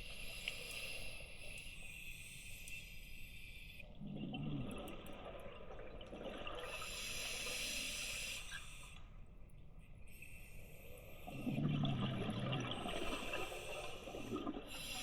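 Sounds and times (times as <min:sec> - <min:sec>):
regulator inhale hiss: 0:00.0 - 0:03.8, 0:06.8 - 0:09.0, 0:10.1 - 0:11.3
bubbling exhale underwater: 0:04.0 - 0:07.0, 0:11.3 - 0:15.0.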